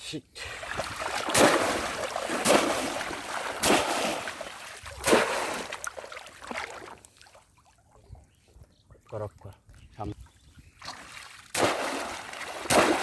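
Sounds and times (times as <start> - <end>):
water splashing: 0.4 - 8.0, 10.8 - 13.0.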